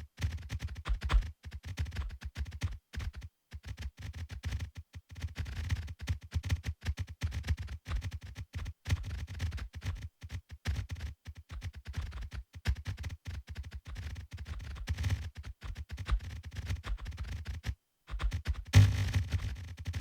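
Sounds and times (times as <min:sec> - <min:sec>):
rapid clicks and knocks: 0:00.2 - 0:20.0.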